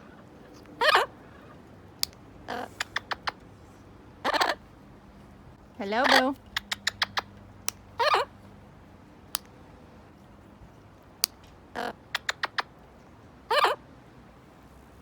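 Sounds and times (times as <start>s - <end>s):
parrot squeaky calls: 0.0s - 1.6s, 2.5s - 3.4s, 4.2s - 4.6s, 5.8s - 7.3s, 8.0s - 8.4s, 11.8s - 12.7s, 13.5s - 13.8s.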